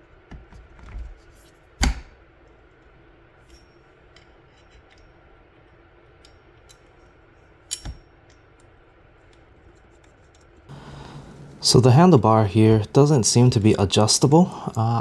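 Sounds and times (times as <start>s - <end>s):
clicks and taps of metal parts: 7.7s - 8.4s.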